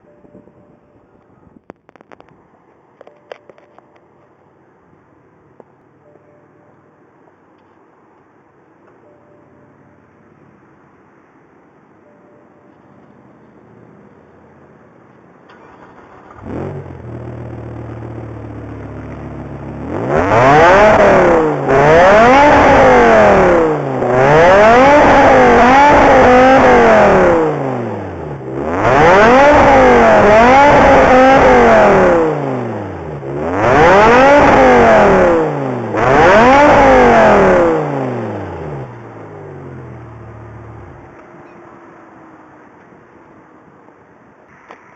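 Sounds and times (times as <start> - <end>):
car engine idling and revving: 12.7 - 44.3
car engine starting: 15.4 - 41.5.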